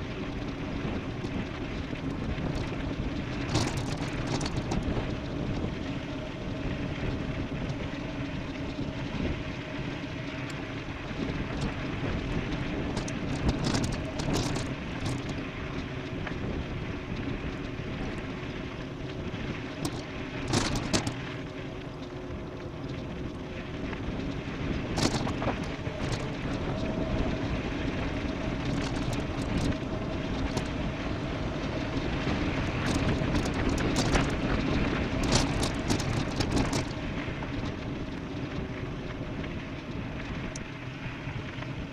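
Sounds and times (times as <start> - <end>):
bike tyre noise: 0.0 - 41.9
wind on microphone: 0.0 - 41.9
sharp ticks and clicks: 25.0 - 26.6, 32.8 - 37.0.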